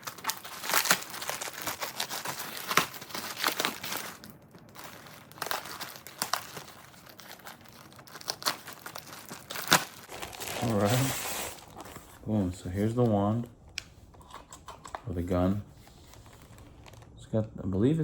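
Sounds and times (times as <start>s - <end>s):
tape wrapping tearing: 0.0s - 12.2s
plastic bags crinkling: 0.0s - 17.2s.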